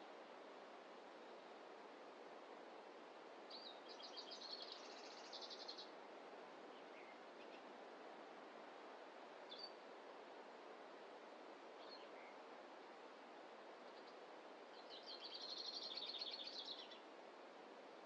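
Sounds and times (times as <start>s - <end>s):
soft rushing forest ambience: 0.0s - 18.0s
rapid trilling bird song: 14.7s - 17.0s.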